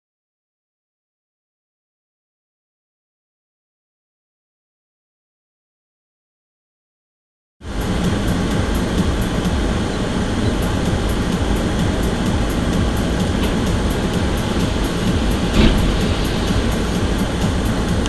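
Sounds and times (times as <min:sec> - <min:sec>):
moving vehicle rumble: 0:07.7 - 0:18.0
brief knock: 0:15.4 - 0:17.0.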